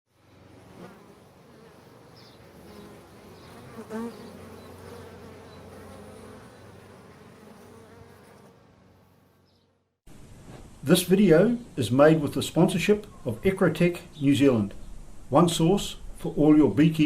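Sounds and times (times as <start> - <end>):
bees buzzing: 0.1 - 9.9.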